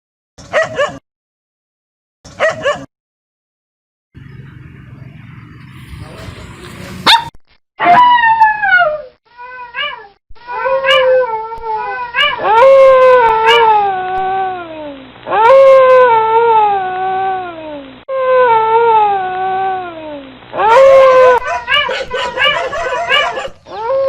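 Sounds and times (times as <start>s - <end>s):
dog howling and yelping: 7.8s - 19.9s, 20.6s - 24.0s.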